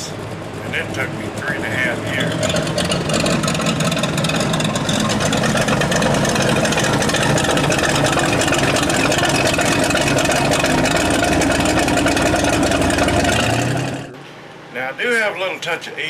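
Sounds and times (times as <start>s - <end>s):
truck engine running: 0.0s - 14.6s.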